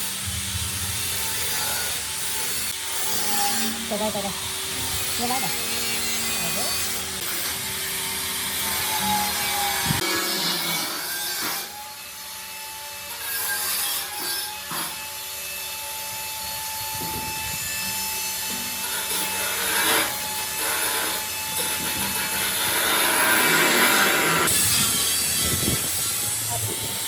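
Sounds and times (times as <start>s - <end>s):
tool scraping material: 0.9s - 7.7s, 18.4s - 27.0s.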